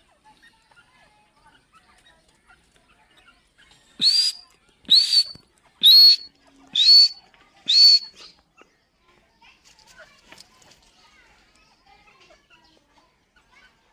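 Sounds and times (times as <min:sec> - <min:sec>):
bird shrill whistled calls: 0:04.0 - 0:08.3.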